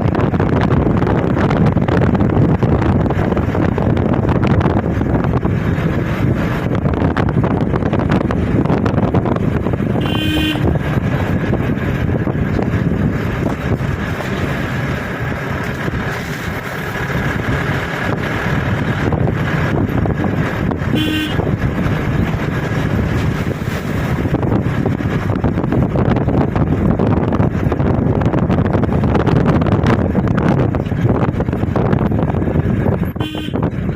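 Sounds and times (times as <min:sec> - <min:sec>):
wind buffeting microphone: 0:00.0 - 0:33.9
vehicle horn toots: 0:09.9 - 0:10.8, 0:20.9 - 0:21.6, 0:33.2 - 0:33.8.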